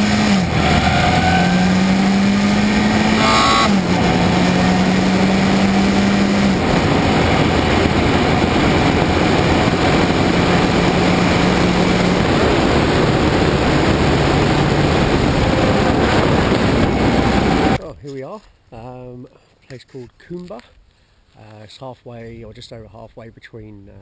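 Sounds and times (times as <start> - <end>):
motorcycle engine cruising: 0.0 - 17.8
wind rush on microphone: 1.7 - 17.8.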